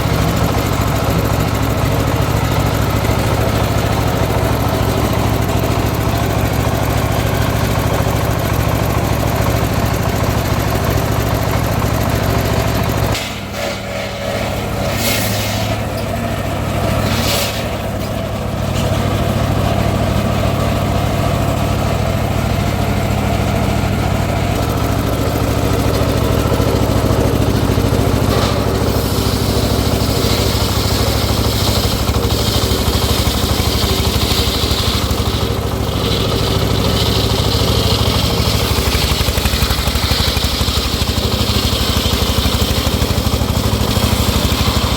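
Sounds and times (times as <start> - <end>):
sawmill engine running: 0.0 - 44.9.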